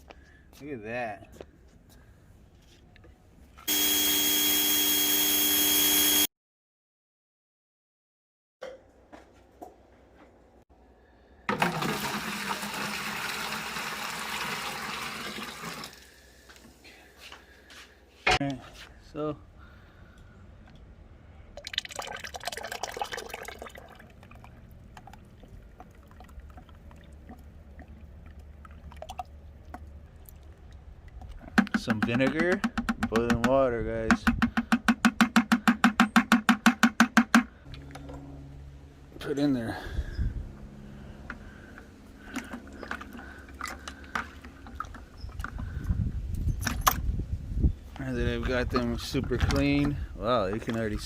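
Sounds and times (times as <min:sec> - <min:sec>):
liquid pouring and splashing: 0:11.5 - 0:16.2, 0:21.5 - 0:31.5
low steady hum: 0:37.6 - 0:51.0.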